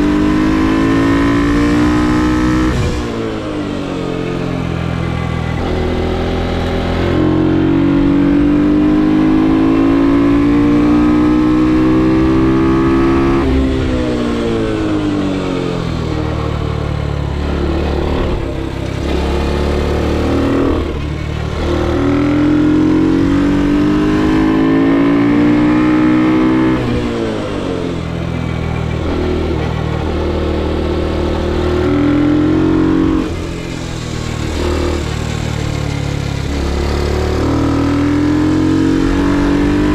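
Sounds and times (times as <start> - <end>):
minibike engine revving: 0.0 - 39.9.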